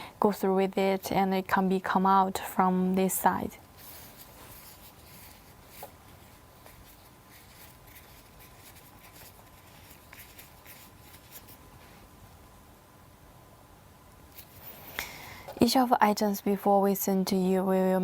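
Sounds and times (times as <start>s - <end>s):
faint steady hum: 0.0s - 18.0s
handling rustles and ticks: 3.7s - 12.1s.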